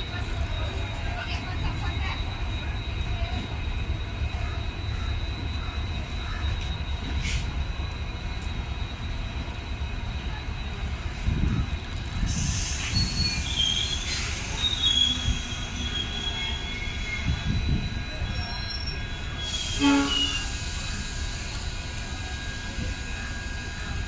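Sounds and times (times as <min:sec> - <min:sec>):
train wheels squealing: 0:00.0 - 0:24.0
train horn blast: 0:19.7 - 0:20.5.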